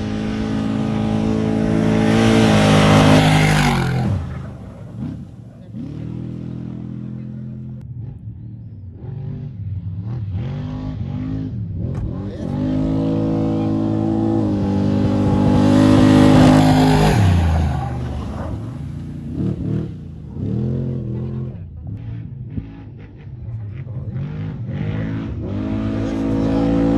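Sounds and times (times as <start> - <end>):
race vehicle engine revving past: 0.0 - 7.5, 12.4 - 21.5.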